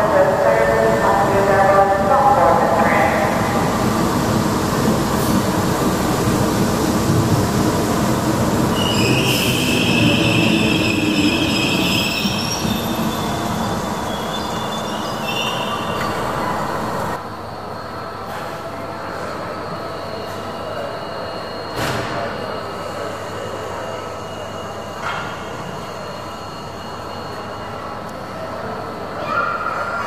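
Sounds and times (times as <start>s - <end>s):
wheel squeal on rails: 8.7s - 16.4s.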